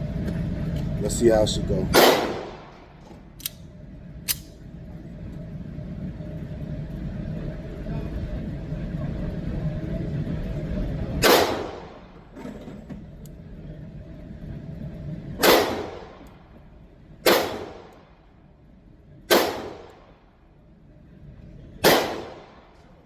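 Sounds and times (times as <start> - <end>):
pistol shots with echo: 2.0 - 2.7, 11.2 - 11.9, 15.4 - 16.1, 17.2 - 17.9, 19.3 - 20.0, 21.8 - 22.6.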